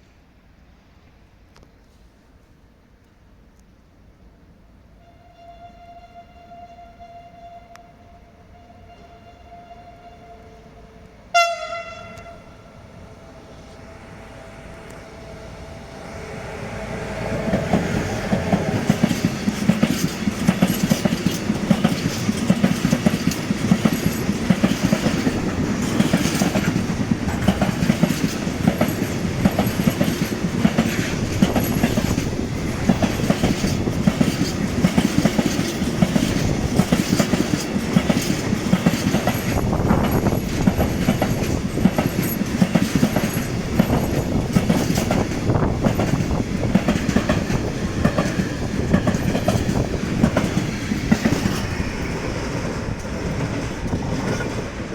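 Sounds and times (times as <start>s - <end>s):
train horn blast: 5.0s - 18.9s
wagon wheels clattering over rails: 18.5s - 51.7s.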